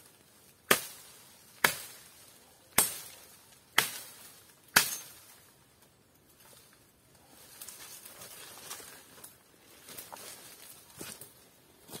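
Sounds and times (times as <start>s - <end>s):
chopping strikes on a branch: 0.6s - 2.1s, 2.7s - 5.2s.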